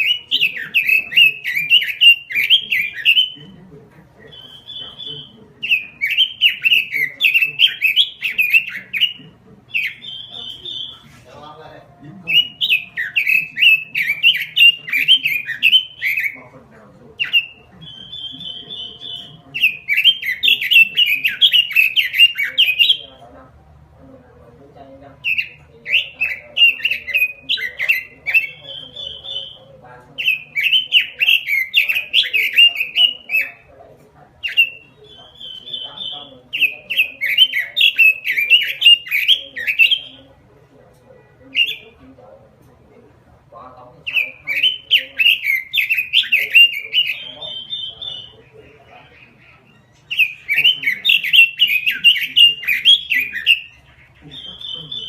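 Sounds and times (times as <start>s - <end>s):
bird trilling: 0.0s - 23.4s, 24.9s - 42.6s, 43.2s - 55.0s
bird singing whistled notes: 17.2s - 23.0s.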